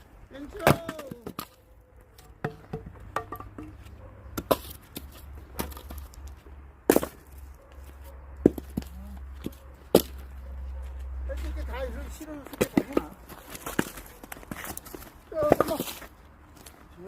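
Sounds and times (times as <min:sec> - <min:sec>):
axe striking wood: 0:00.6 - 0:01.6, 0:08.4 - 0:10.2.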